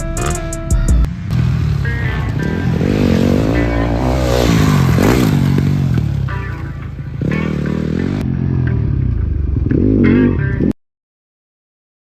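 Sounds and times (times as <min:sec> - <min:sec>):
dirt bike engines revving: 0:01.0 - 0:10.5.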